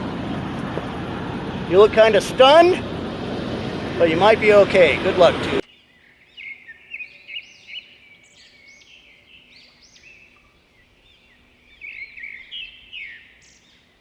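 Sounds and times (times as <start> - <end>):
small songbirds chirping: 5.6 - 14.0.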